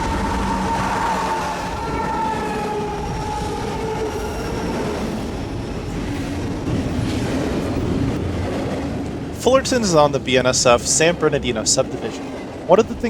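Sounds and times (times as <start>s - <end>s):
pitched whine: 0.0s - 6.3s
freight train wheels rumbling: 0.0s - 13.0s.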